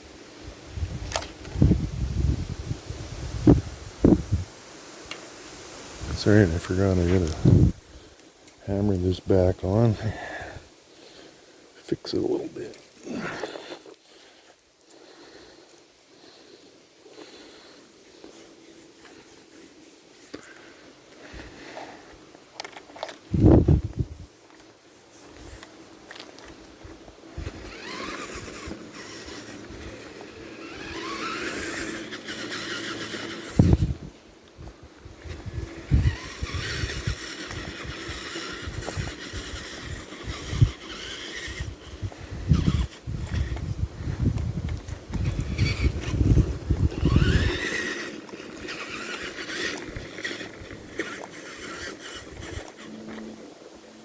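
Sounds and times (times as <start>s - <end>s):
toy truck motor whining: 6.2s - 9.1s, 27.4s - 34.1s, 35.1s - 53.7s.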